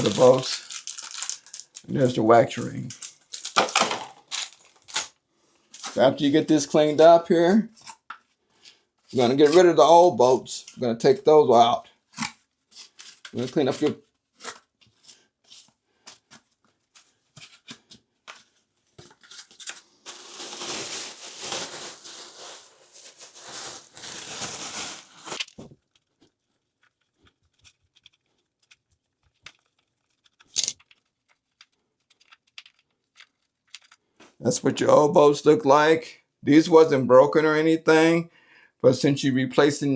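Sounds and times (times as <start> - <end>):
rustling and scraping: 2.5 - 6.2, 12.2 - 34.4.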